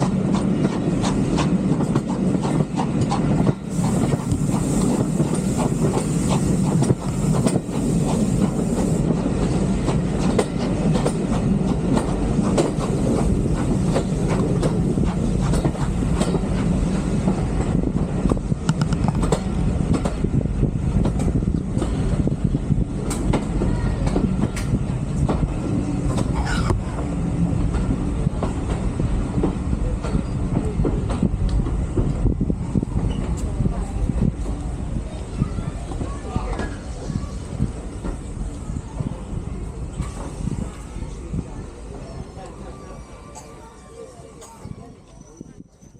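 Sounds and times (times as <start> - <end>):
wheels clicking over rail joints: 0.0 - 20.3
train carriages rumbling: 0.0 - 45.9.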